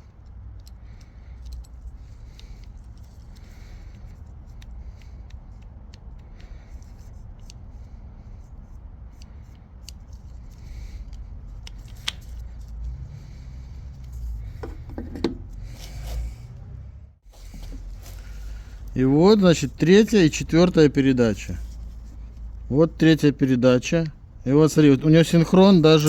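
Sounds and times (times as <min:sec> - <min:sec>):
metallic clicks and clinks of parts: 0:00.0 - 0:07.6
low steady hum: 0:00.0 - 0:26.0.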